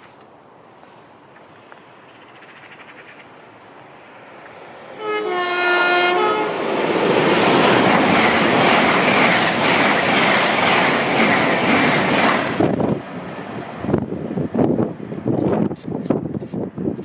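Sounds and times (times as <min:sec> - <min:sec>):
train wheels rumbling on rail: 0:04.4 - 0:17.0
train horn blast: 0:05.0 - 0:06.7.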